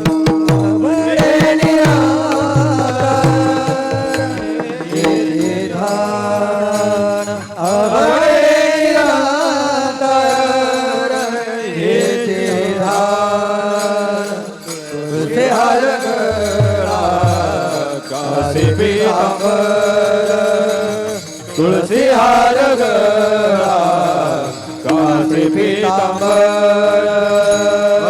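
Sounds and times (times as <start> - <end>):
tabla strokes: 0.0 - 6.0, 16.2 - 26.6
man singing devotional song: 0.0 - 28.0.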